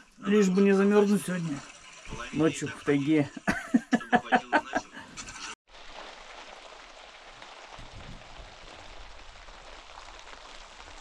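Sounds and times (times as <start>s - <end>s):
heavy rain on a roof: 5.7s - 11.0s.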